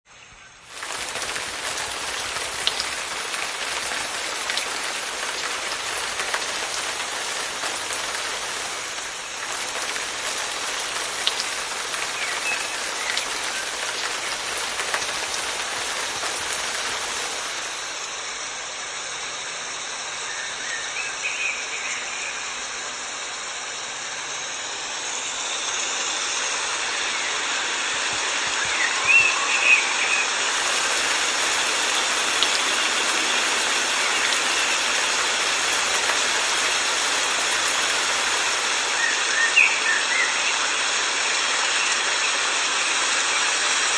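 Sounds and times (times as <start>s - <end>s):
rain falling: 0.6s - 18.3s, 26.4s - 43.9s.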